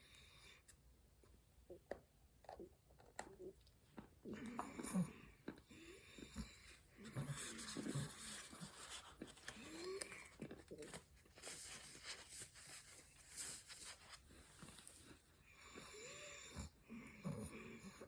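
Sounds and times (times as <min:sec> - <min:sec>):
chewing and crunching: 0:02.4 - 0:11.8.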